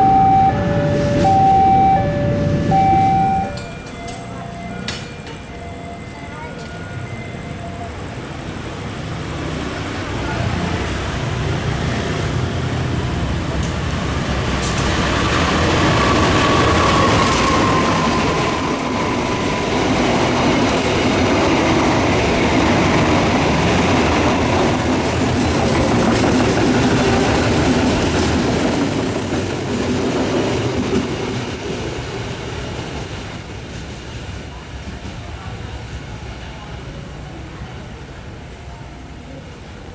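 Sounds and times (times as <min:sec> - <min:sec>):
high wheel squeal: 0:00.0 - 0:08.9
train wheels rumbling on rails: 0:00.0 - 0:39.9.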